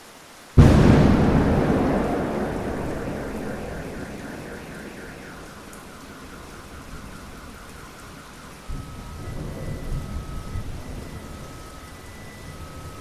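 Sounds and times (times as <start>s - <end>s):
steady rain: 0.0s - 12.4s
thunder rumbling: 0.6s - 7.9s.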